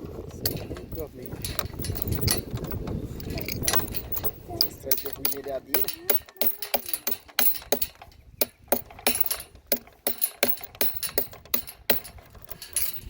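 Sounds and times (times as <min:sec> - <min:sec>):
loose metal pieces clinking: 0:00.1 - 0:13.0.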